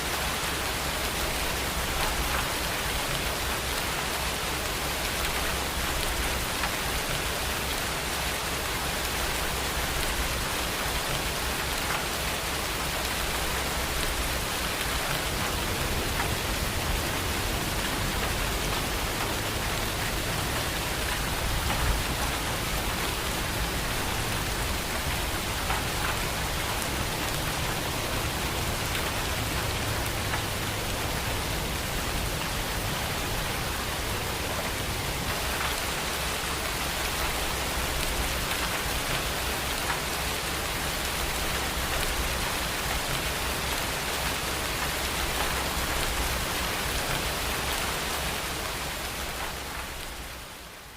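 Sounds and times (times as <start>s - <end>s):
rain pouring down: 0.0s - 50.9s.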